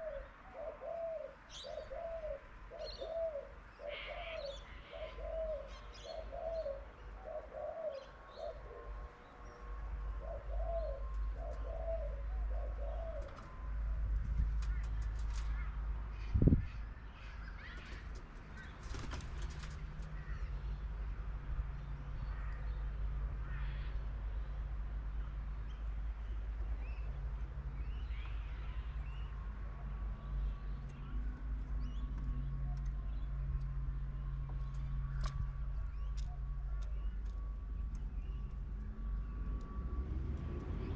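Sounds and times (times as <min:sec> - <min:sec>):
bird calls: 0:00.0 - 0:13.8, 0:14.4 - 0:20.8
low hum and rumble: 0:08.9 - 0:40.9.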